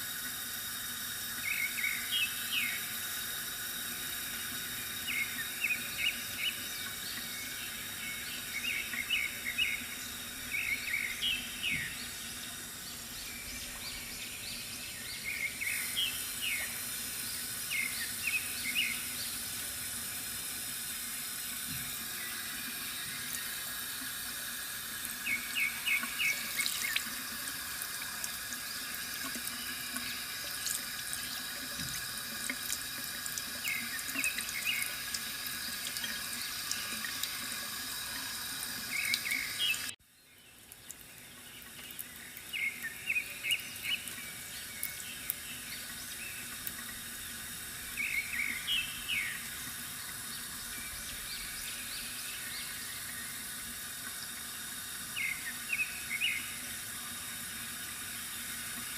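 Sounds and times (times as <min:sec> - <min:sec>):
fountain water running: 0:00.0 - 0:58.9
small birds chirping: 0:01.4 - 0:02.9, 0:05.0 - 0:20.2, 0:25.0 - 0:27.2, 0:33.6 - 0:37.5, 0:38.8 - 0:54.5, 0:55.1 - 0:56.7.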